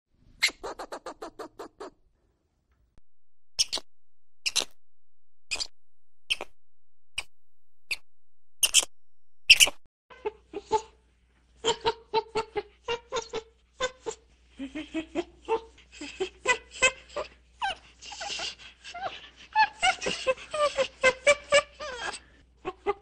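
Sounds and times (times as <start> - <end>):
squirrel high-pitched calls: 0.4 - 1.9, 3.6 - 4.8, 5.5 - 5.7, 6.3 - 6.6, 8.6 - 8.9, 9.5 - 9.8
monkey calls: 0.4 - 2.0, 3.6 - 3.8, 4.4 - 4.8, 5.5 - 5.7, 6.3 - 6.5, 8.6 - 8.9, 9.5 - 9.8.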